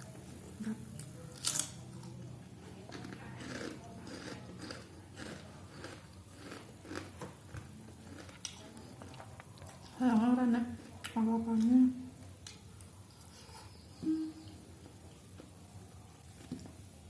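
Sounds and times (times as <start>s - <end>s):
crisp crunching chewing: 2.9s - 10.0s.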